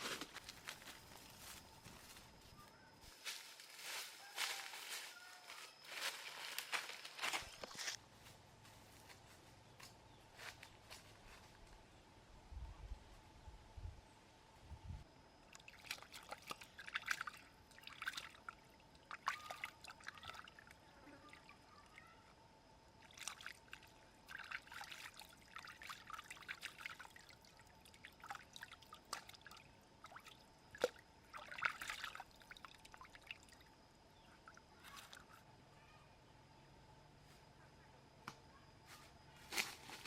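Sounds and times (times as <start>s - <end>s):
water trickling and splashing: 15.4s - 22.1s, 23.0s - 33.8s.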